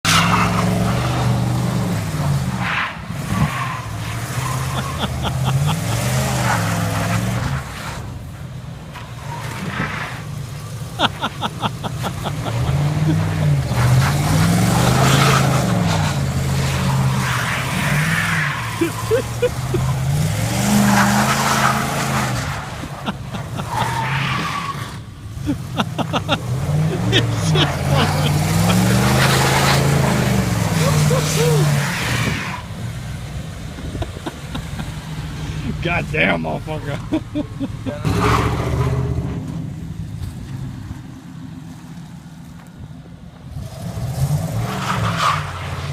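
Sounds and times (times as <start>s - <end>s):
truck engine revving: 0.0s - 41.0s, 43.5s - 45.9s
tyres spinning in snow: 0.1s - 36.4s.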